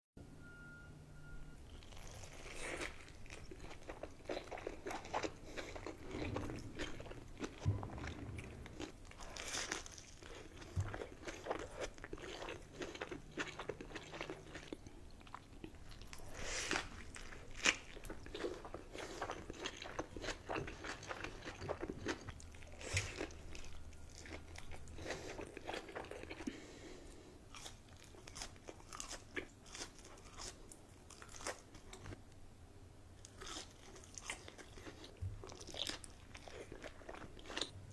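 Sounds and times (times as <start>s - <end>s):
biting and chewing: 1.7s - 26.6s, 27.5s - 32.2s
food crunching: 1.7s - 26.6s, 27.5s - 32.1s, 33.2s - 37.9s.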